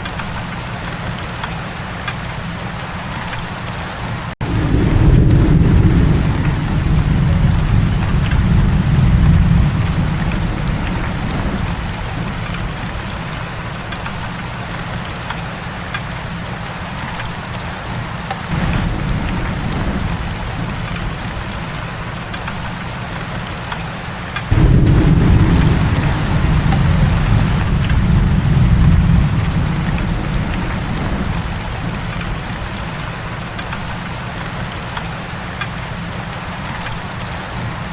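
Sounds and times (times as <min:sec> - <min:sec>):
heavy rain hissing: 0:00.5 - 0:37.9
deep low rumble: 0:24.5 - 0:33.0.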